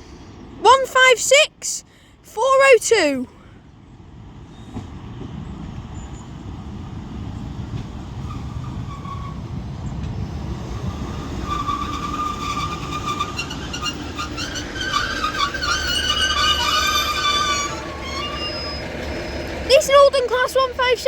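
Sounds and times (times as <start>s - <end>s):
diesel train rumble: 0.0s - 21.0s
train brakes squealing: 4.5s - 4.9s, 8.2s - 9.6s, 10.8s - 20.9s.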